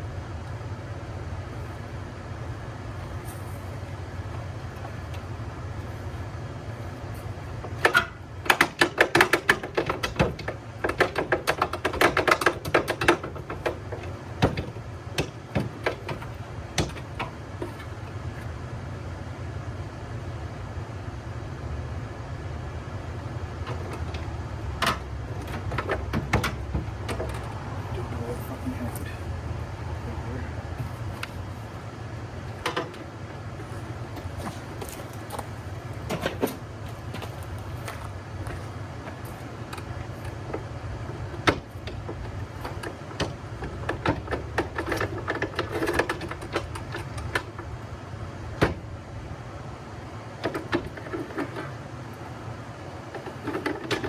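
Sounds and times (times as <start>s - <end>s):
steady low hum: 0.0s - 54.0s
sharp clicks and knocks: 7.6s - 18.5s, 23.6s - 28.1s, 32.6s - 33.1s, 33.8s - 47.7s, 50.4s - 51.8s, 53.1s - 54.0s.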